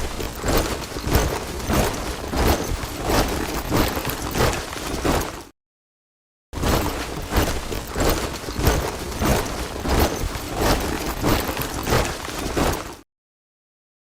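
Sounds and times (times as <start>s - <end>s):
soldiers marching in step: 0.0s - 5.5s, 6.6s - 13.0s.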